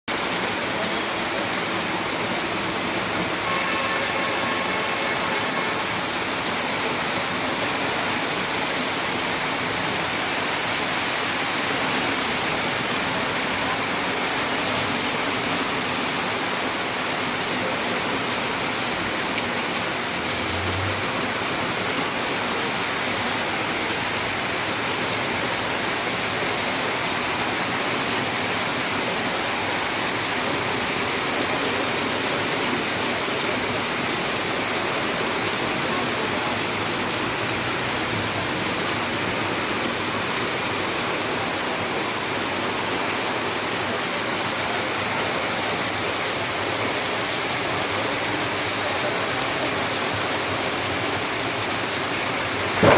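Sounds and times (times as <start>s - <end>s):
heavy rain pouring: 0.1s - 52.9s.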